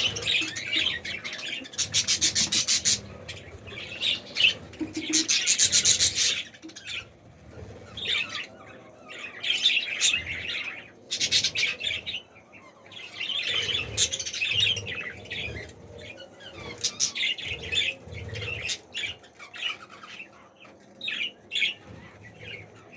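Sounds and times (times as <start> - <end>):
budgerigars chattering: 0.0 - 7.0.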